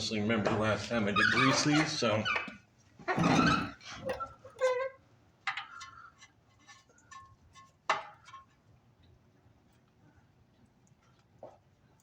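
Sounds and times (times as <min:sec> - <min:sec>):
grease gun squeak: 0:01.1 - 0:05.0.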